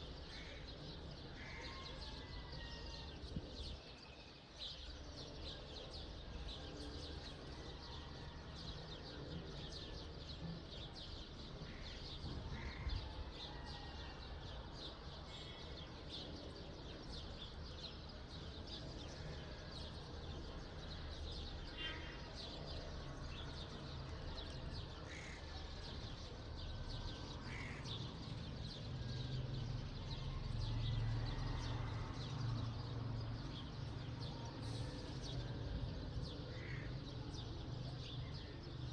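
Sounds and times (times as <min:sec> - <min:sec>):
small birds chirping: 0:15.4 - 0:29.9.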